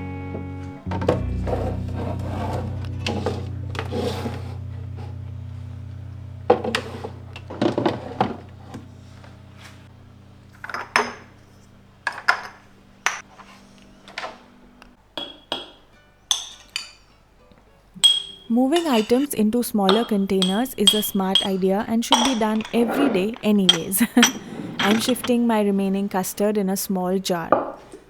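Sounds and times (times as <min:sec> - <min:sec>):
glass jars clinking: 0:10.6 - 0:11.3, 0:12.0 - 0:13.2, 0:15.2 - 0:17.1, 0:18.0 - 0:25.5.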